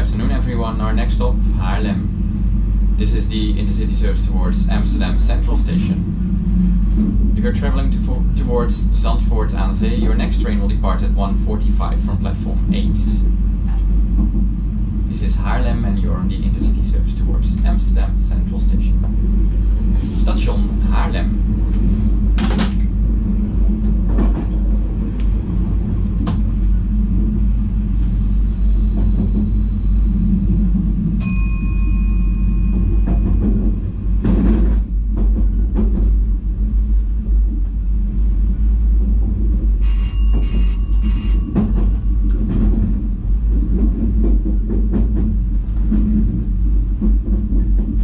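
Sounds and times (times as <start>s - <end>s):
electric train rumbling: 0.0s - 48.0s
electronic chime: 31.2s - 33.8s
train clattering over points: 31.3s - 36.5s, 39.8s - 48.0s.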